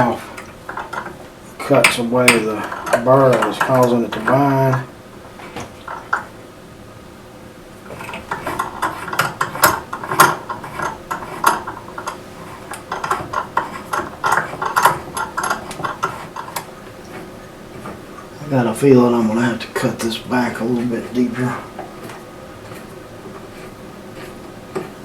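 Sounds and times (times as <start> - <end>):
metal tools clinking and scraping: 0.0 - 6.3, 7.9 - 16.7.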